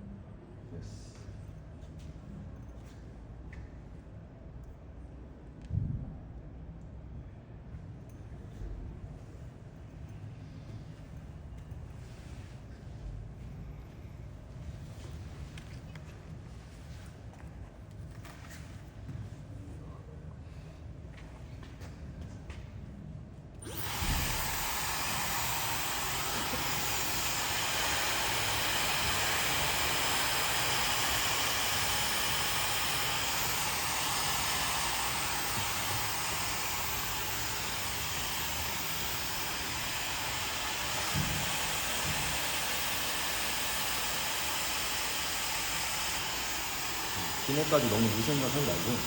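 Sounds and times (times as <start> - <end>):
hair dryer running: 23.6 - 49.0.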